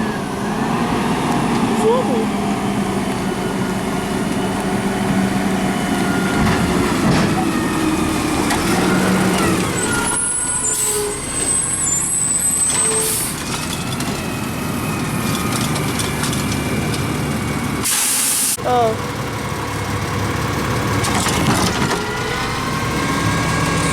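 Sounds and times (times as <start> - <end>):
garbage truck engine running: 0.0 - 23.9
thin high squeal: 9.8 - 13.3.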